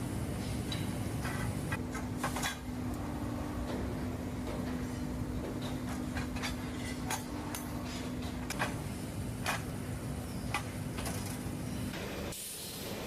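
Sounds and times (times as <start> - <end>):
factory machinery hum: 0.0 - 13.0
metallic clanks and knocks: 3.6 - 8.8.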